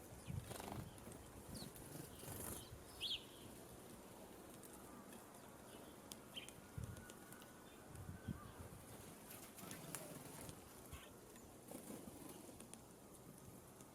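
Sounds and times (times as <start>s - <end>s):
sparrows chirping: 0.0s - 3.6s.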